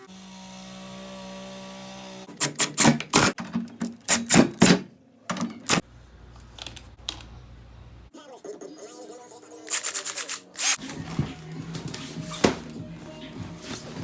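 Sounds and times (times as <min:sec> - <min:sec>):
sharp tool strikes: 0:02.3 - 0:03.4, 0:04.0 - 0:04.8.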